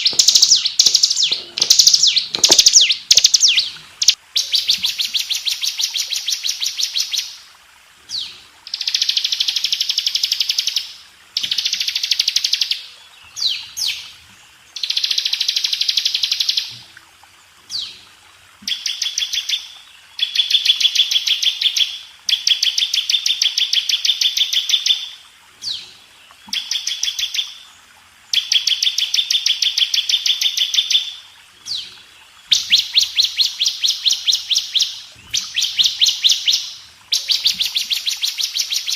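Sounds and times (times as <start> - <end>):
bird singing rapid high trills: 0.0 - 4.7.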